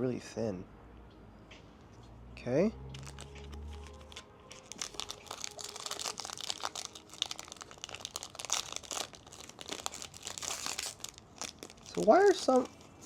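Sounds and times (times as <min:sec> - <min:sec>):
plastic wrapper crinkling: 0:02.9 - 0:13.0.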